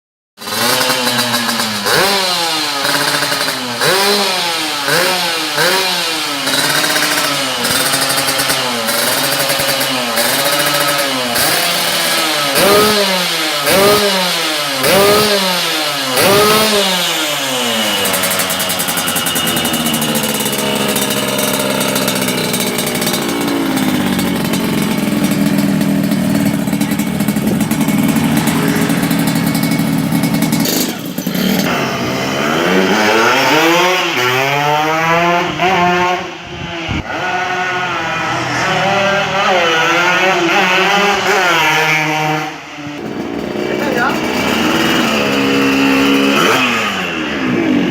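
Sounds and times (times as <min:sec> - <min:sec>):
motorcycle engine revving: 0:00.4 - 0:47.9
motorcycle engine idling: 0:00.5 - 0:32.2, 0:43.0 - 0:47.4.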